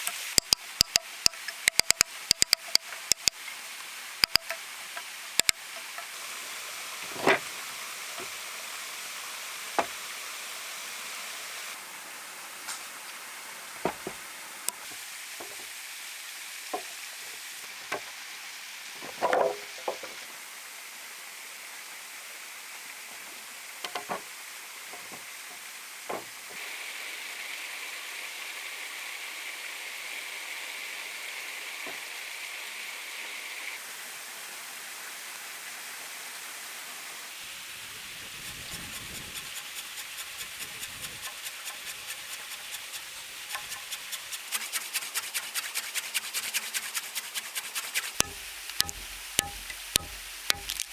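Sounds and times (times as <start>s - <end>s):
sharp knocks and taps: 0.4s - 3.3s, 4.2s - 4.6s, 48.2s - 50.9s
steady hiss: 37.2s - 50.9s.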